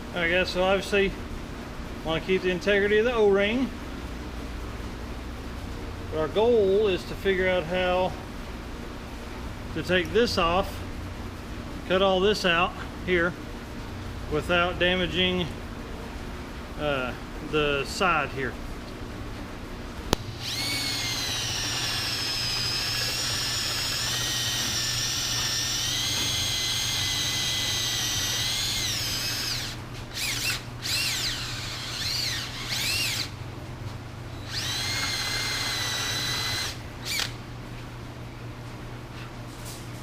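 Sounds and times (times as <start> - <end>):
rotary tool whining: 20.1 - 33.4, 34.3 - 37.4.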